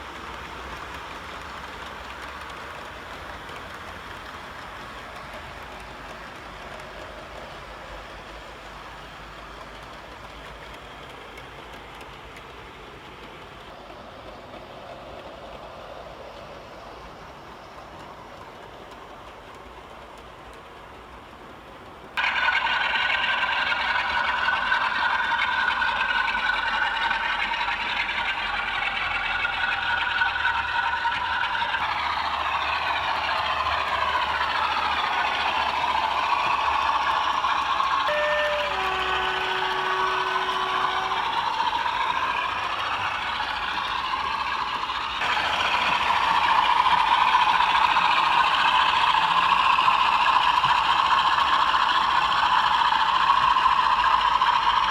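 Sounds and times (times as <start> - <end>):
model train wheels rattling: 0.0 - 16.2, 16.9 - 54.9
loud steady tones: 31.8 - 54.5.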